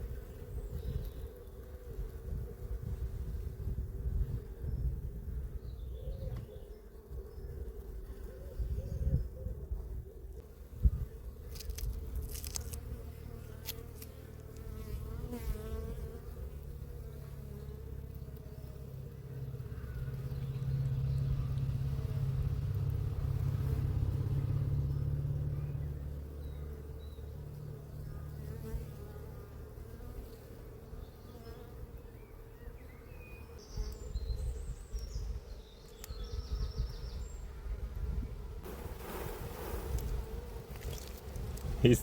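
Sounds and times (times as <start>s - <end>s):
honeybees buzzing: 10.1s - 42.0s.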